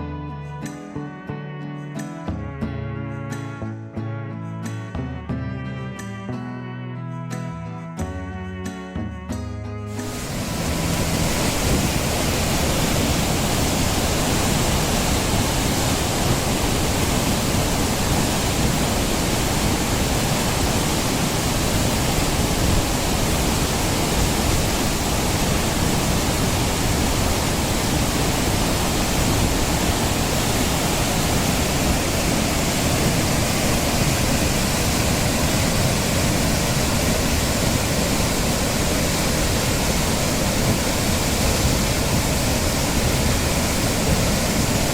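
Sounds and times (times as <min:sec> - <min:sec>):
waterfall rushing: 0:10.0 - 0:44.9.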